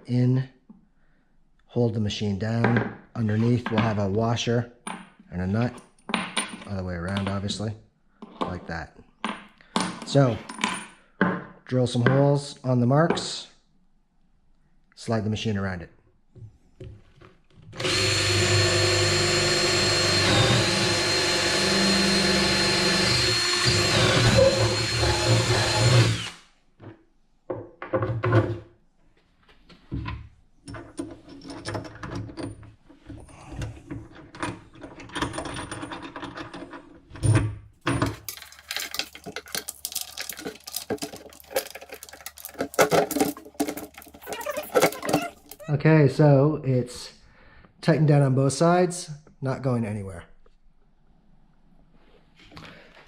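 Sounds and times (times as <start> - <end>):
power drill drilling plywood: 17.8 - 26.4.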